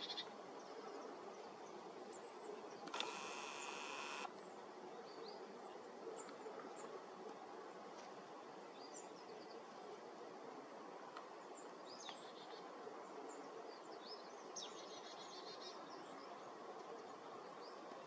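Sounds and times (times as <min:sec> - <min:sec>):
faint outdoor hiss: 0:00.0 - 0:18.0.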